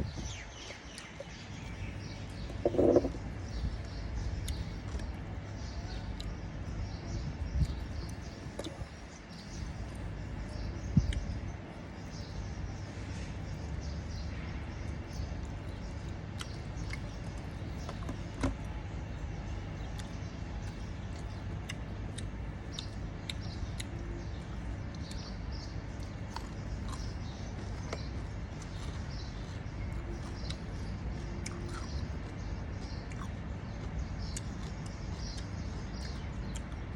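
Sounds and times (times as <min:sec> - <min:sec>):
low background hum: 0:00.0 - 0:36.9
chewing: 0:19.8 - 0:36.9.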